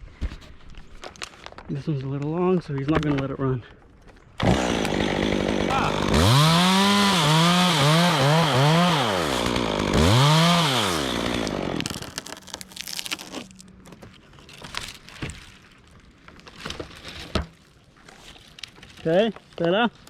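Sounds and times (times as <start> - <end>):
chainsaw revving: 4.4 - 12.5
rustling: 11.8 - 20.0.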